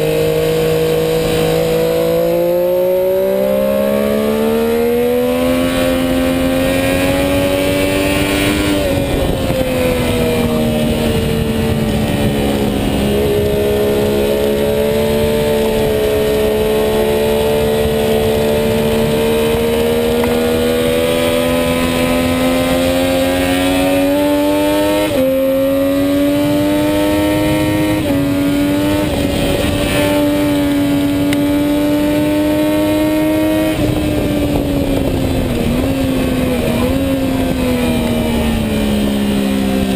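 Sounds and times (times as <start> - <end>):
gear changes: 0.0 - 39.9
motorcycle engine accelerating: 0.0 - 39.9
wind rush: 0.0 - 39.9.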